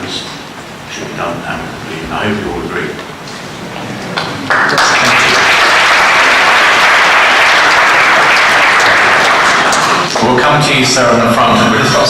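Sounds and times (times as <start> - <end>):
audience applause: 4.2 - 10.3.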